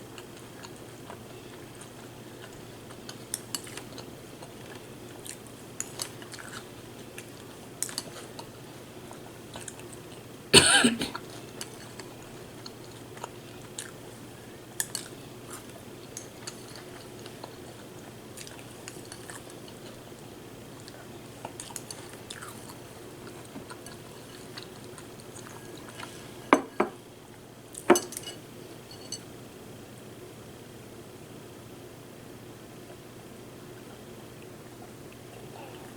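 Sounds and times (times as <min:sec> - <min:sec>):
chewing and crunching cereal: 0:00.0 - 0:10.5, 0:11.1 - 0:26.4
spoon clinking on bowl: 0:27.9 - 0:29.2.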